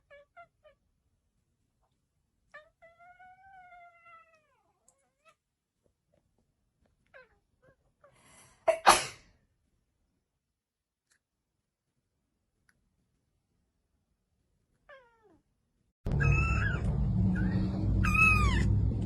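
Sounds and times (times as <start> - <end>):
cat meowing: 14.8 - 15.4, 16.1 - 18.8.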